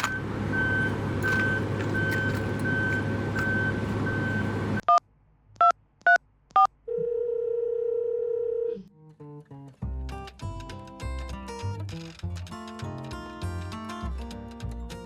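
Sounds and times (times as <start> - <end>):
engine rumble: 0.0 - 4.8
reversing alarm beeping: 0.0 - 4.8
short electronic beeps: 0.0 - 5.0.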